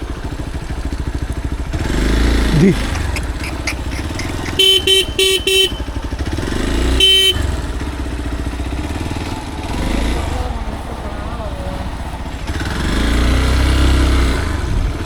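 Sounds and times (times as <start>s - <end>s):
motorcycle engine running: 0.0s - 15.0s
motorcycle horn beeping: 2.9s - 8.0s.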